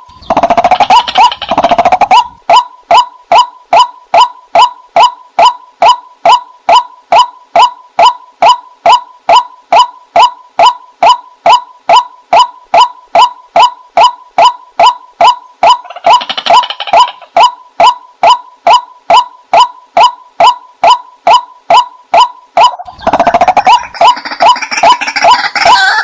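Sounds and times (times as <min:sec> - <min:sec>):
waterhen call: 0:00.0 - 0:26.0
rough chattering: 0:00.2 - 0:02.2.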